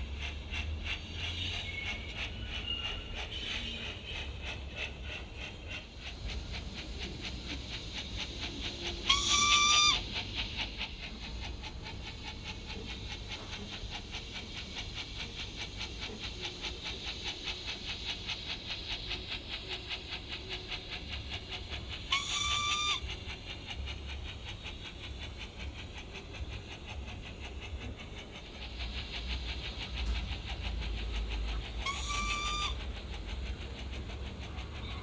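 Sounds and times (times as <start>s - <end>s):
steam locomotive chuffing: 0.0s - 35.0s
steam whistle: 9.1s - 10.0s, 22.2s - 23.0s, 31.8s - 32.8s.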